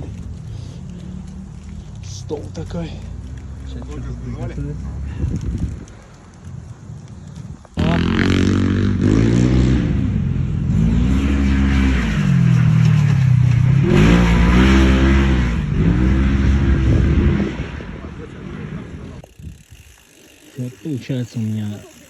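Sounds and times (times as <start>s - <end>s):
vehicle engine revving: 7.8s - 19.2s.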